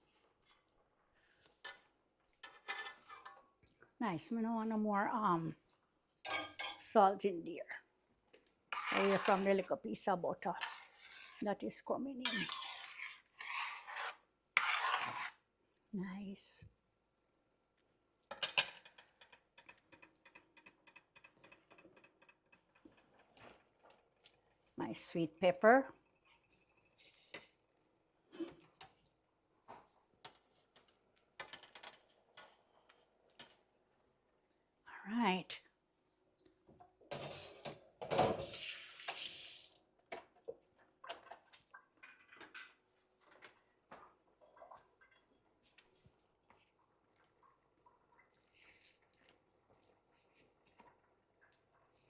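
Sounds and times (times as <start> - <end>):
pots and utensils clinking: 6.3 - 6.8
water running: 38.3 - 39.8.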